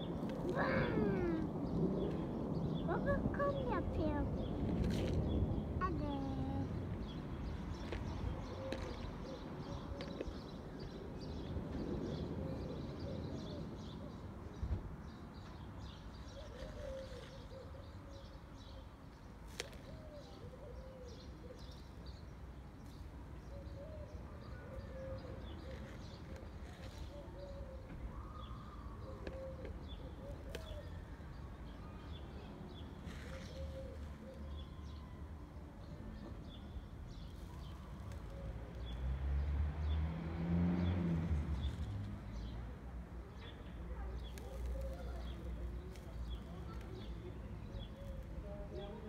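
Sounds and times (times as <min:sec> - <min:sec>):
birds warbling calls: 0:00.0 - 0:04.6.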